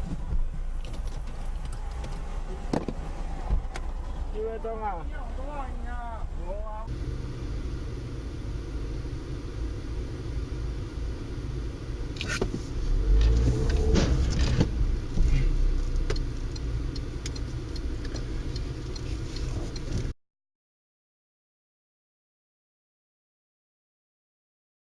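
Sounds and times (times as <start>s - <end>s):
car engine and road rumble: 0.0s - 20.2s
faint ticks: 15.8s - 20.1s.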